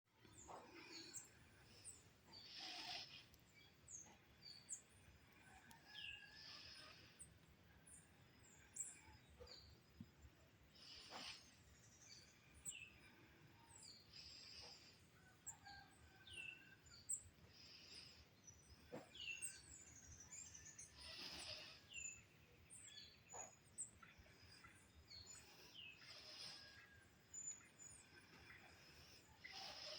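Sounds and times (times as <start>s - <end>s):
birds chirping: 0.2s - 29.9s.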